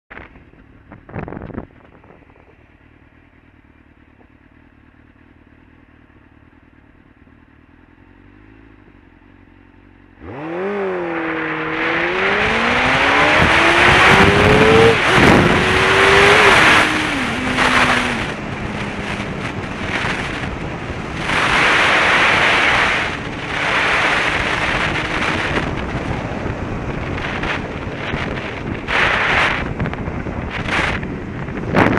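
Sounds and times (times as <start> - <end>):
wind noise on microphone: 0.1 - 2.7, 10.4 - 31.9
motorcycle engine revving: 0.1 - 31.9.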